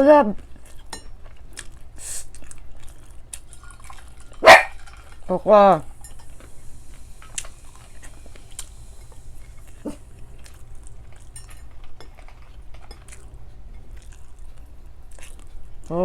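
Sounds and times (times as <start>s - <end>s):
person chewing: 0.4s - 16.0s
utensils clinking on plate: 3.5s - 9.7s, 10.8s - 13.2s.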